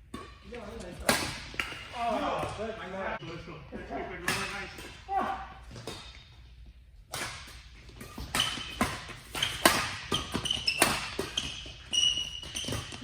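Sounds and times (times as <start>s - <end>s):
racket striking shuttlecock: 7.1s - 11.6s
shoes squeaking on court floor: 7.6s - 13.0s.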